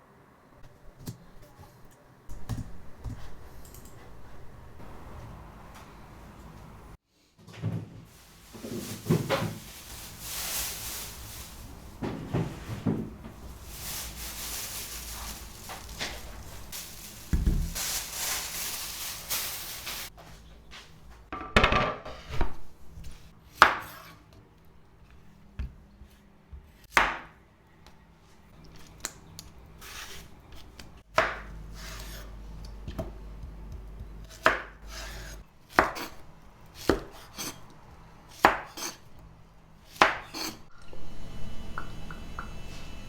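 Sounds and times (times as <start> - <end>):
rustling and scraping: 7.4 - 21.2.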